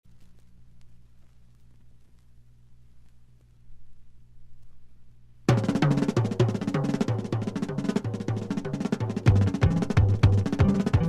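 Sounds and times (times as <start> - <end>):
vinyl surface crackle: 0.0 - 4.9.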